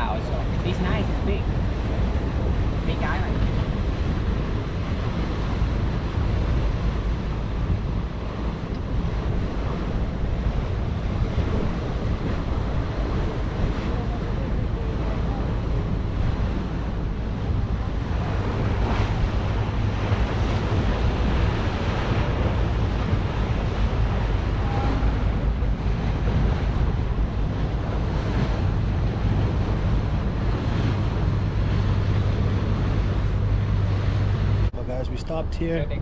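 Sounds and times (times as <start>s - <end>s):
boat engine droning: 0.0s - 36.0s
water splashing against hull: 0.0s - 36.0s
wind buffeting microphone: 0.0s - 36.0s.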